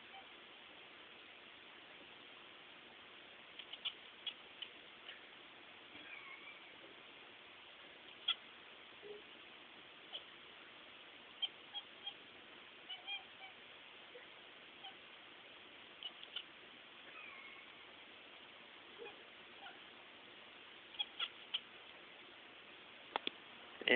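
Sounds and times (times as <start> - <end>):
faint hiss: 0.0 - 23.9
cat chirping and clicking: 3.5 - 4.8, 8.1 - 8.5, 10.1 - 10.3, 11.4 - 12.2, 12.9 - 13.6, 16.0 - 17.9, 20.9 - 21.7.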